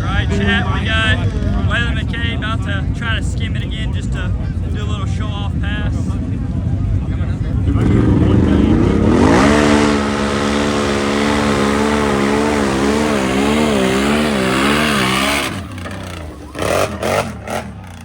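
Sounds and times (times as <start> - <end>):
atv engine revving: 7.4 - 18.0.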